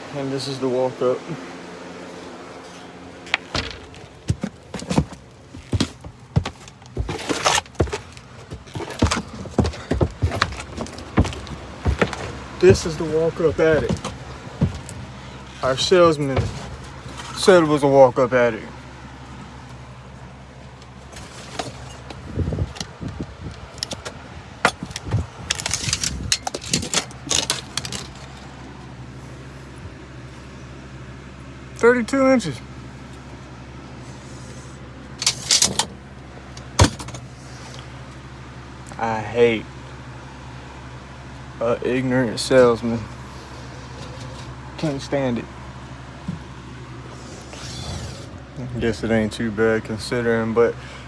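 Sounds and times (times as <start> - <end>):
steady low hum: 0.0 - 51.0
metal tools clinking and rattling: 2.6 - 17.6, 23.6 - 28.5, 35.2 - 36.0
footsteps on steps: 3.2 - 17.2.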